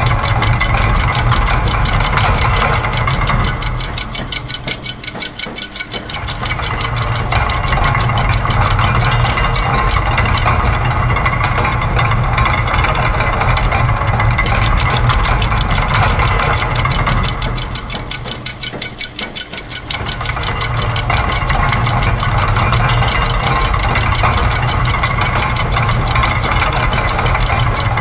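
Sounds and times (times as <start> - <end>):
low machine rumble: 0.0 - 4.8, 6.0 - 18.8, 19.8 - 28.0
fast mechanical clicking: 0.0 - 28.0.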